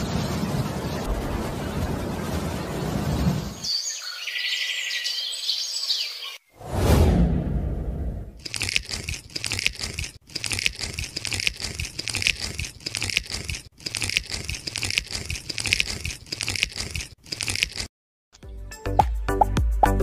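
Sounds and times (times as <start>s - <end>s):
crinkling and crackling: 8.4s - 17.9s.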